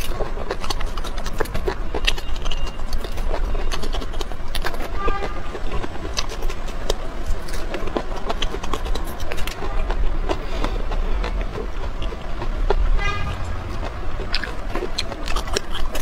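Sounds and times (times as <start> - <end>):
wet crunchy chewing: 0.0 - 16.0
low hum: 10.3 - 16.0.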